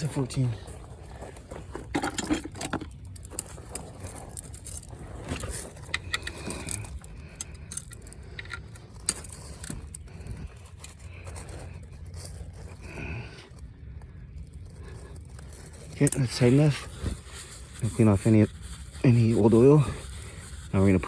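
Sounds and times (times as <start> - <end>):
low steady hum: 0.0 - 21.0
metal wrench clinking and scraping: 1.7 - 12.8.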